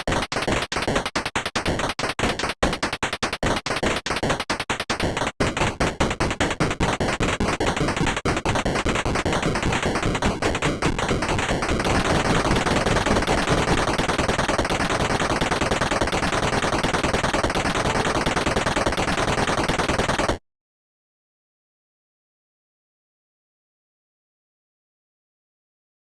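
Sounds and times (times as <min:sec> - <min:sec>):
fast percussive taps: 0:00.0 - 0:20.4.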